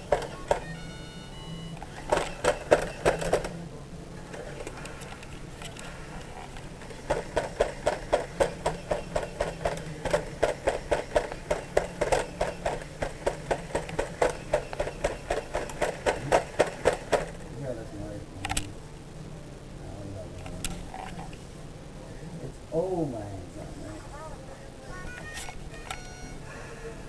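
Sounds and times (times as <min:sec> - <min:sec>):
toy truck mechanism clicking: 0:25.4 - 0:26.1.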